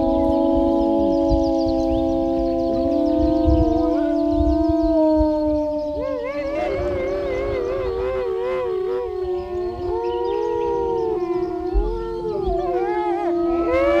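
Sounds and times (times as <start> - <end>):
dogs howling in chorus: 0.0 - 14.0.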